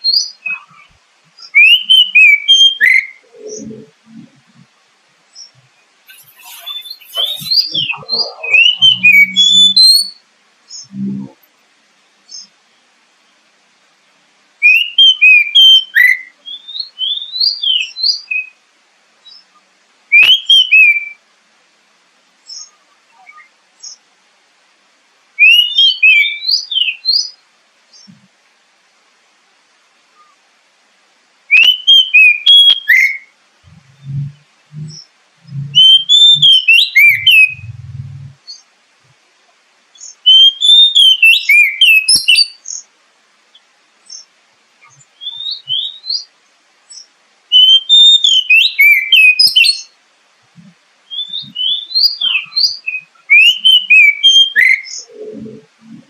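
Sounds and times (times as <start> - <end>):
bird singing whistled phrases: 0.0 - 3.9, 6.1 - 11.0, 14.6 - 18.6, 20.1 - 21.2, 25.4 - 27.3, 31.5 - 33.3, 33.9 - 38.6, 40.0 - 42.6, 44.8 - 46.3, 47.5 - 49.9, 51.1 - 55.6.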